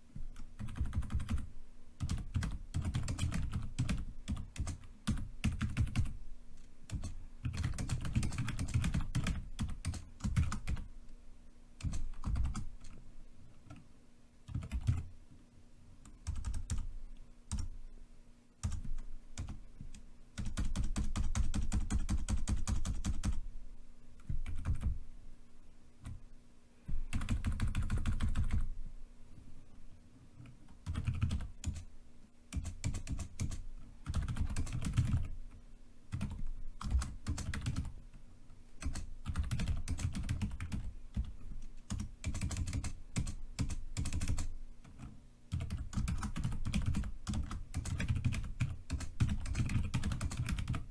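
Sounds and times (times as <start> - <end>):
computer keyboard typing: 0.3 - 6.2, 6.9 - 10.9, 11.8 - 13.0, 14.5 - 15.1, 16.0 - 16.9, 17.5 - 17.8, 18.6 - 23.4, 24.2 - 25.0, 27.1 - 28.7, 30.4 - 31.9, 32.5 - 35.4, 36.1 - 37.9, 38.8 - 50.9.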